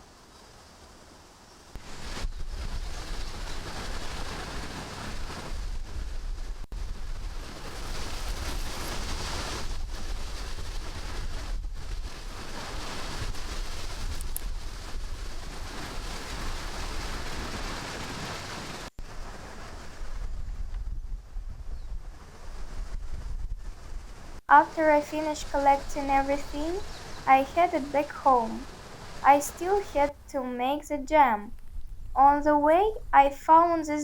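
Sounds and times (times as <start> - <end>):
rushing wind: 1.7 - 30.3, 31.0 - 34.0
wind buffeting microphone: 1.8 - 24.4, 31.5 - 34.0.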